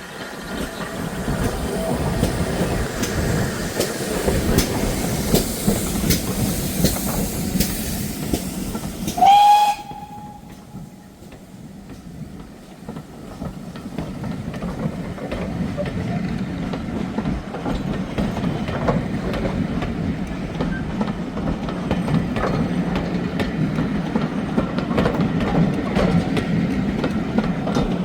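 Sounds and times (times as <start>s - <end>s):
train rushing by: 0.0s - 28.0s
wheels clicking over rail joints: 0.1s - 28.0s
train whistle blast: 9.1s - 10.8s.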